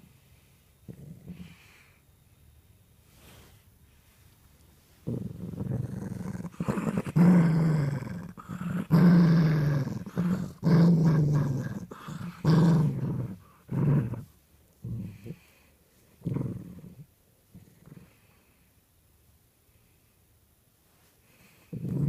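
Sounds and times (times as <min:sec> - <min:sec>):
dog growling: 0:00.9 - 0:01.9, 0:05.0 - 0:18.3, 0:21.7 - 0:22.0.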